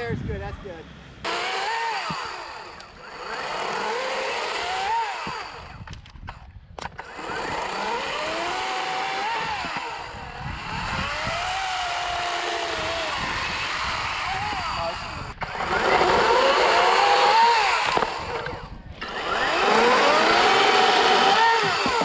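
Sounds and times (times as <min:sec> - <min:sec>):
electric chainsaw whining: 0:01.2 - 0:22.0
sharp clicks: 0:01.3 - 0:03.7.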